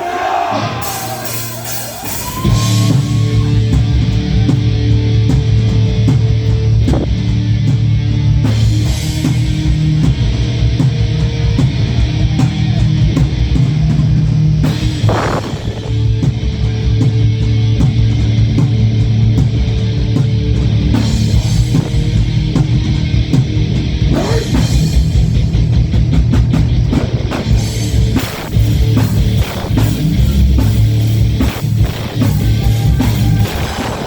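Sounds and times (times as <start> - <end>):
live heavy rock band: 0.0 - 34.0.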